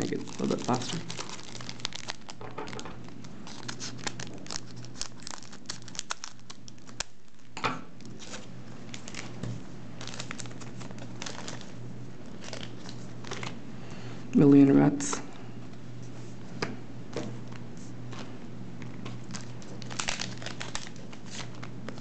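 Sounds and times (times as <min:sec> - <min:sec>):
foil packs crinkling: 0:00.0 - 0:09.4, 0:10.0 - 0:13.6, 0:18.9 - 0:22.0.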